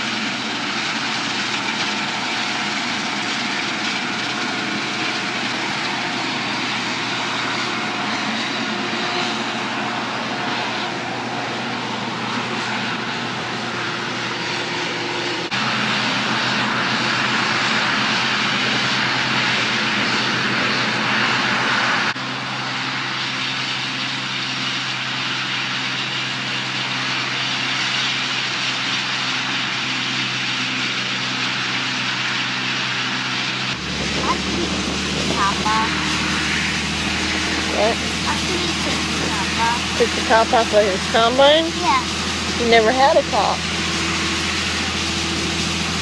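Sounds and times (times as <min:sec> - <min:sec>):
large engine running: 0:00.0 - 0:46.0
broad rushing noise: 0:04.0 - 0:22.2, 0:33.7 - 0:46.0.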